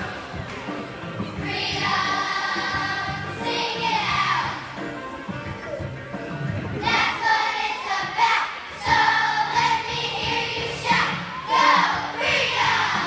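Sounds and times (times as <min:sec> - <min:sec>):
backing track: 0:00.0 - 0:13.0
voices singing together: 0:01.3 - 0:05.2, 0:06.8 - 0:13.0.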